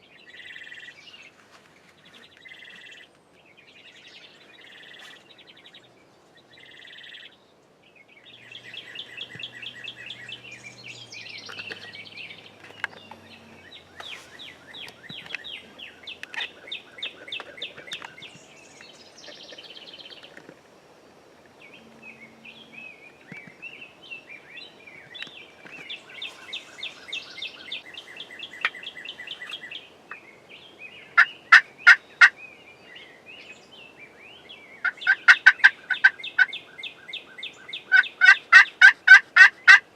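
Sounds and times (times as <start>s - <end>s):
turkey gobbling loudly: 31.2s - 32.4s, 34.8s - 36.5s, 37.9s - 39.9s
turkeys calling short notes: 37.9s - 39.9s.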